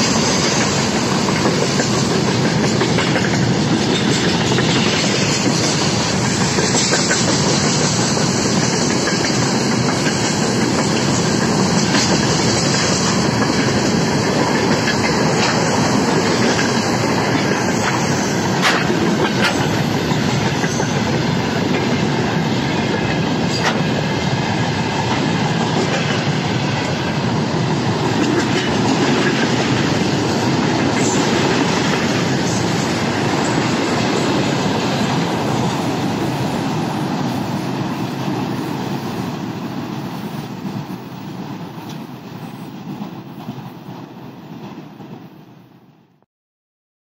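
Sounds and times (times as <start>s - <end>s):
wheels clattering over rail joints: 0.0s - 24.0s.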